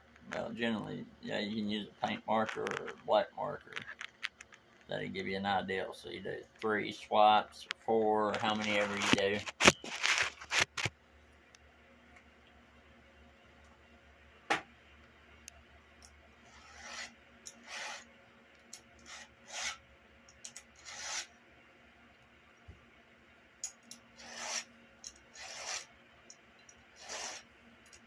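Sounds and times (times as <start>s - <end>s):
file rasping on chainsaw chain: 16.5s - 18.1s, 19.0s - 19.8s, 20.8s - 21.3s, 24.2s - 25.9s, 27.0s - 27.4s.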